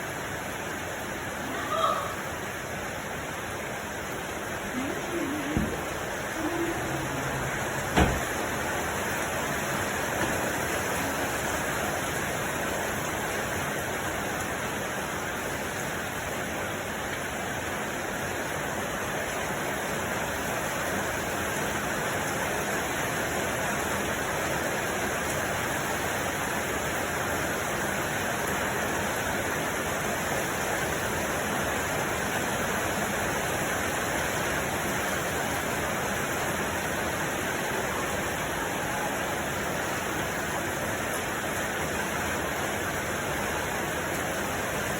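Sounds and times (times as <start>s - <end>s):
short knock: 8.0s - 8.3s.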